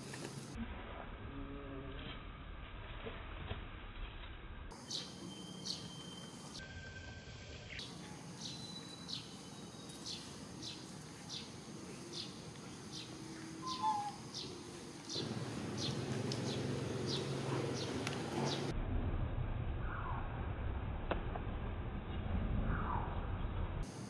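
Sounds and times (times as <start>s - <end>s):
bird chirping: 4.7s - 18.7s
steady low hum: 9.2s - 24.0s.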